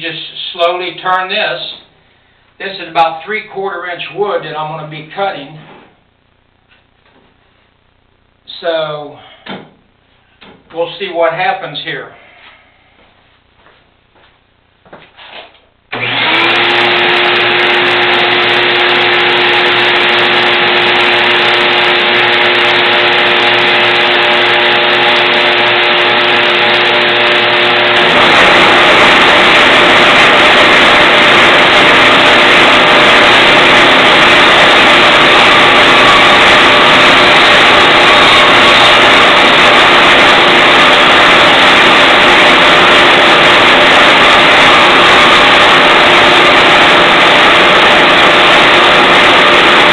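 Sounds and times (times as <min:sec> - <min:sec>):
band saw motor humming: 0:15.9 - 0:49.9
band saw cutting wood: 0:16.0 - 0:49.9.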